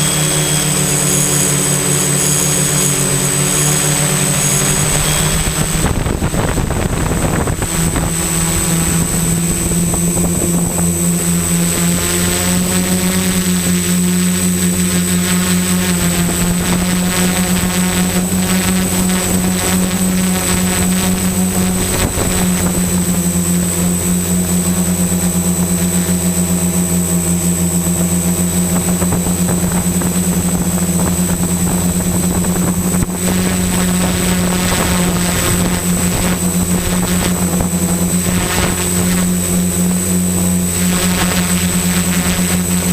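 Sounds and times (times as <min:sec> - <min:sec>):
drone motors humming: 0:00.0 - 0:42.9
high whine: 0:00.0 - 0:42.9.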